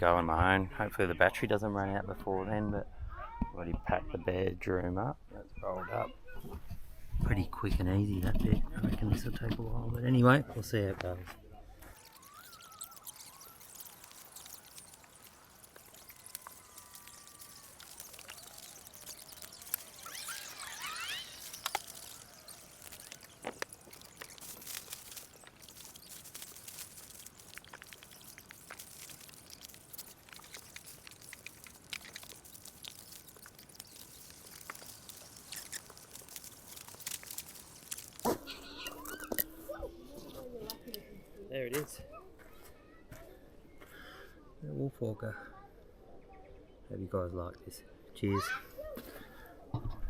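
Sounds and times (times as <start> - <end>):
bird chirping: 11.9 - 39.4
tent fabric crinkling: 11.9 - 39.4.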